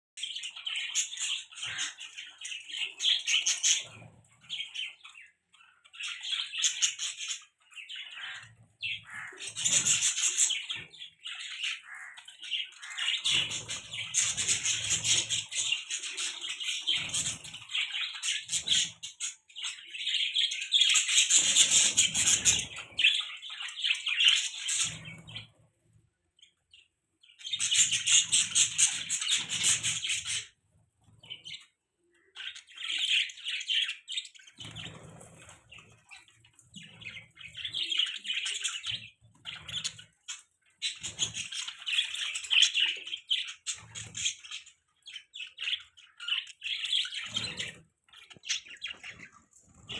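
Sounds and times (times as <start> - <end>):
budgerigar chirping and chattering: 0.4 - 4.0, 6.5 - 19.4, 20.1 - 25.5.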